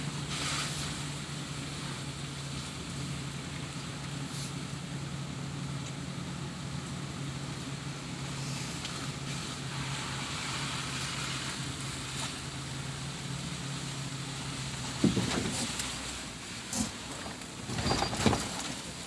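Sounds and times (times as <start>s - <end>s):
vehicle engine humming: 0.0s - 19.0s
thump: 15.0s - 15.7s.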